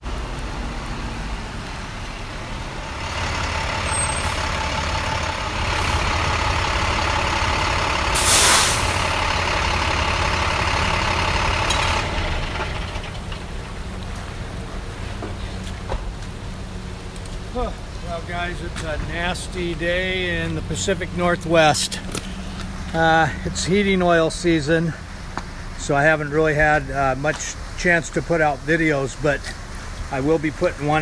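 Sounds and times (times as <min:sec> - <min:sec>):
truck engine rumbling: 0:00.0 - 0:31.0
loud air hiss: 0:08.0 - 0:09.3.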